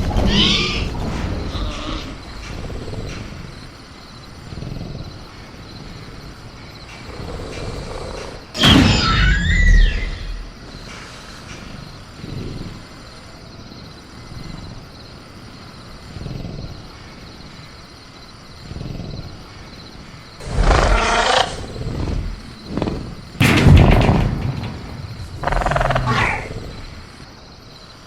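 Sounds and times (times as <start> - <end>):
crickets chirping: 0.0 - 28.0
dinosaur creature roaring: 20.4 - 22.4, 25.4 - 27.0
dinosaur creature growling: 20.4 - 24.0, 25.2 - 27.2.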